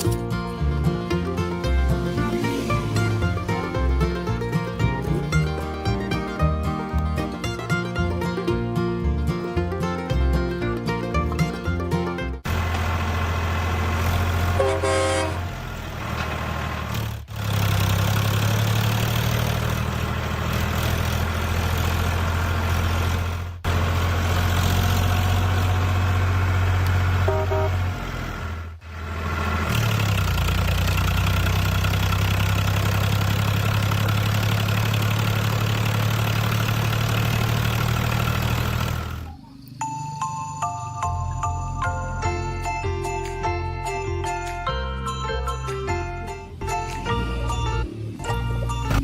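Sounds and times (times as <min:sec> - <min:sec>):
truck engine humming: 0:00.0 - 0:49.0
horn toots: 0:14.5 - 0:15.6, 0:27.2 - 0:28.0.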